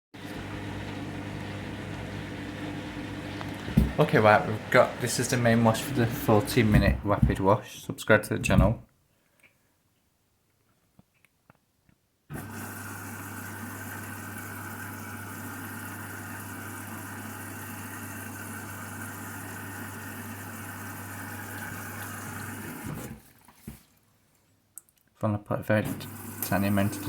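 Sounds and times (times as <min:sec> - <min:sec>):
water rushing into machine: 0:00.2 - 0:07.0, 0:12.3 - 0:23.7, 0:25.9 - 0:27.0
water inlet valve humming: 0:00.2 - 0:07.5, 0:12.3 - 0:23.3, 0:25.8 - 0:27.0.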